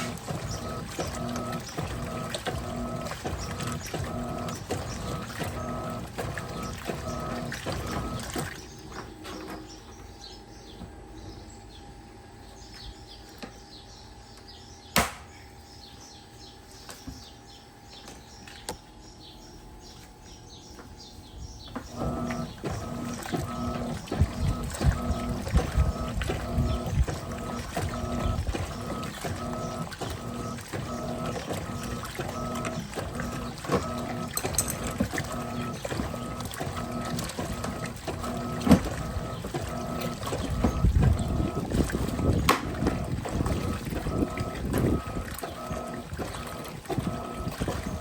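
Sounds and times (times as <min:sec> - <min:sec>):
water sloshing: 0:00.0 - 0:09.7, 0:21.9 - 0:48.0
washing machine agitating: 0:00.0 - 0:11.0, 0:21.6 - 0:48.0.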